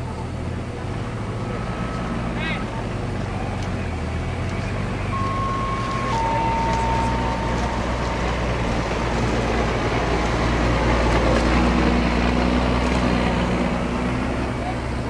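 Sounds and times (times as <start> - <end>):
diesel engine humming: 0.0 - 15.0
faint higher tone: 5.1 - 10.1.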